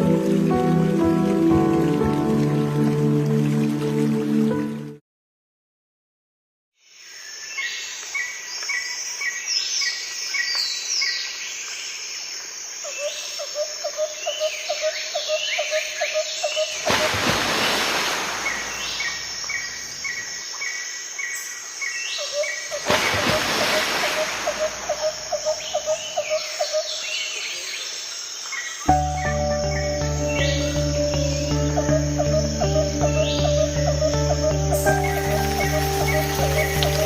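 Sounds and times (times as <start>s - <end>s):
birds chirping and whistling: 28.9s - 37.0s.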